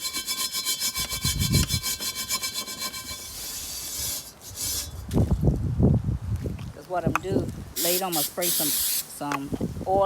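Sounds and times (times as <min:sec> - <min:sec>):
steel wool scrubbing cast iron: 0:00.0 - 0:05.1.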